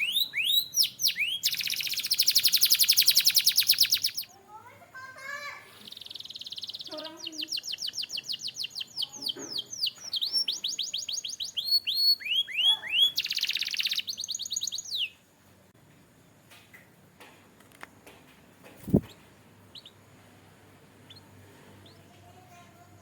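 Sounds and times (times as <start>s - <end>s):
canary singing: 0.0s - 4.4s, 5.8s - 15.3s, 18.8s - 20.2s, 20.8s - 22.5s.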